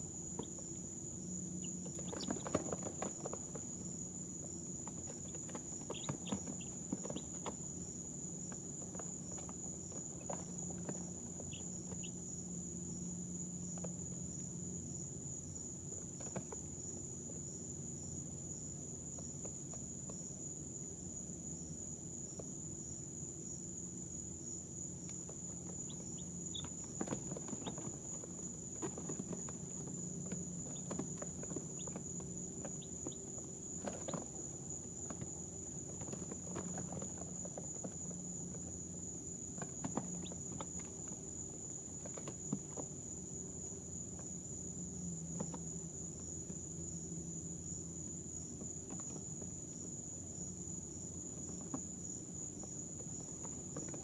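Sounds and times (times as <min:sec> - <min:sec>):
baby chicks peeping: 0:01.6 - 0:03.7, 0:04.7 - 0:12.3, 0:25.1 - 0:35.2, 0:39.6 - 0:41.2.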